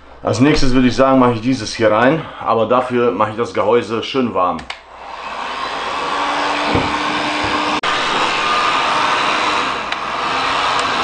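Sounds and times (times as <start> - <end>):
hot-air gun blowing: 4.8 - 11.0.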